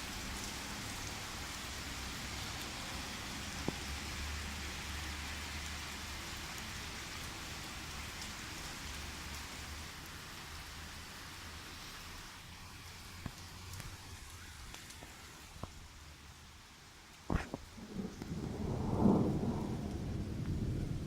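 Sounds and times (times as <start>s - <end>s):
steady rain falling: 0.0s - 21.0s
low thunder rumble: 17.7s - 21.0s.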